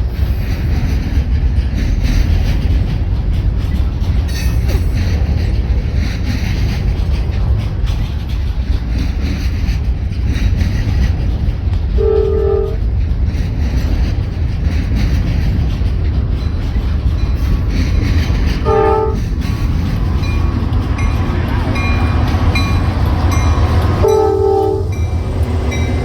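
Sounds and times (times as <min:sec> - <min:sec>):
train rumbling past: 0:00.0 - 0:26.0
locomotive air horn blasts: 0:12.0 - 0:12.8, 0:18.6 - 0:19.2, 0:24.0 - 0:25.0.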